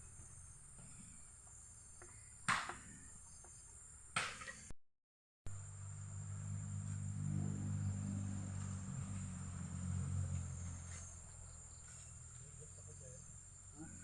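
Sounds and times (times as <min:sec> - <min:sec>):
insects chirring: 0:05.6 - 0:14.0.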